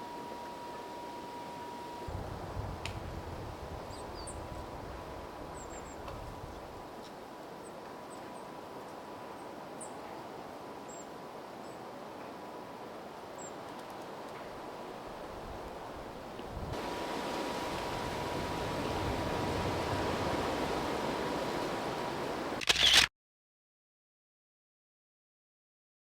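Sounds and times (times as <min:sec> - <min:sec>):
steady wind: 0:00.0 - 0:23.1
wind rumble on microphone: 0:02.1 - 0:06.9, 0:15.1 - 0:22.6.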